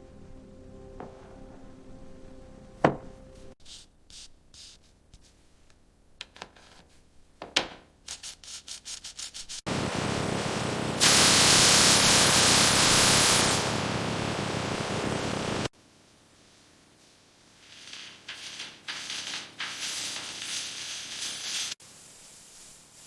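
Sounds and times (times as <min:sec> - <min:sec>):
loud rasping hiss: 0:09.7 - 0:15.7.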